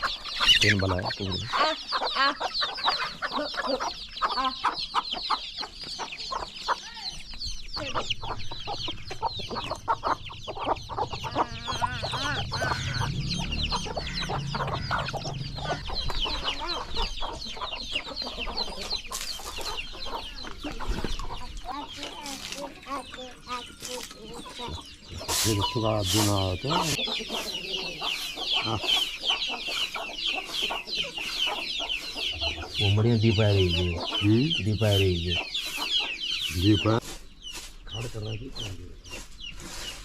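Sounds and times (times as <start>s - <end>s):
chickens clucking: 0.0s - 40.0s
low hum: 8.1s - 16.8s.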